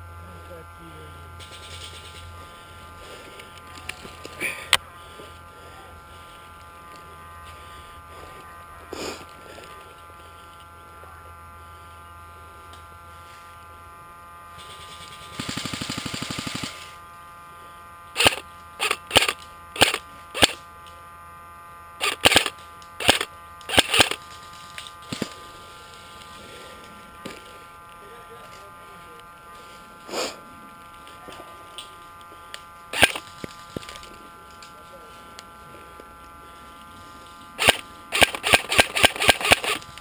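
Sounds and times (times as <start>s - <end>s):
gun motor whirring: 1.4s - 10.9s, 14.5s - 17.2s, 17.9s - 20.9s, 21.9s - 28.0s, 29.2s - 40.0s
airsoft gun full-auto burst: 14.6s - 17.0s, 18.2s - 20.6s, 22.0s - 24.4s, 32.9s - 33.6s, 37.6s - 40.0s.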